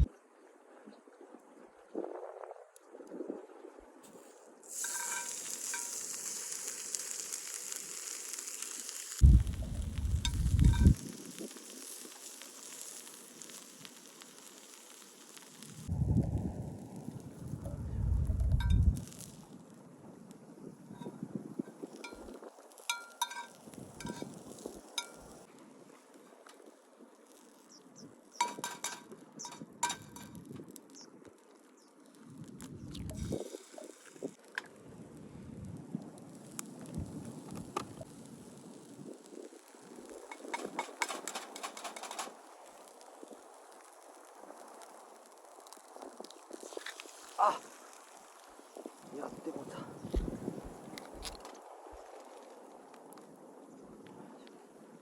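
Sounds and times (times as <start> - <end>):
food sizzling on a grill: 4.1 - 15.9, 16.6 - 19.8, 20.4 - 25.5, 27.2 - 31.1, 31.8 - 34.4, 36.2 - 52.5
loud low rumble: 9.2 - 10.8, 17.5 - 19.0.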